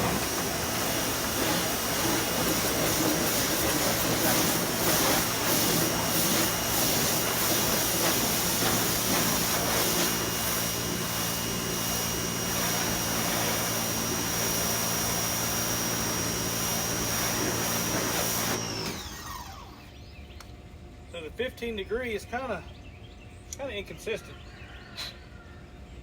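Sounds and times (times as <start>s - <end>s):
pressure washer spray hissing on wood: 0.0s - 19.1s
pressure washer motor humming: 0.0s - 20.0s.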